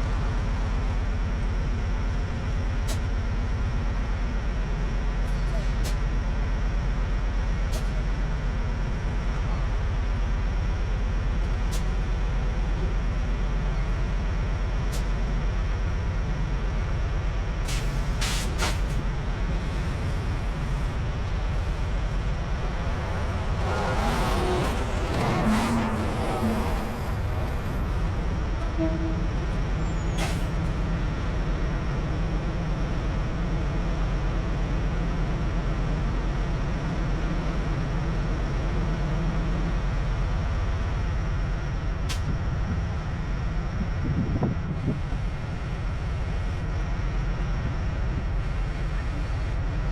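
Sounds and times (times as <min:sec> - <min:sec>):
diesel truck engine idling: 0:00.1 - 0:33.2.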